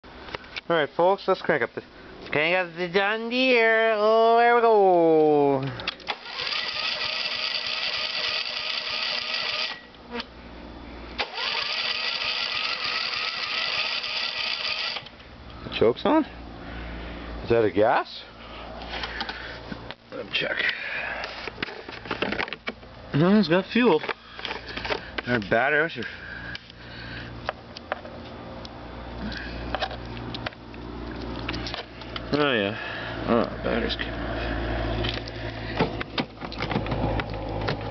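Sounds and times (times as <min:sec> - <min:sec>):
steady low hum: 0:00.0 - 0:37.9
starter cranking engine: 0:05.9 - 0:09.9, 0:11.2 - 0:15.1.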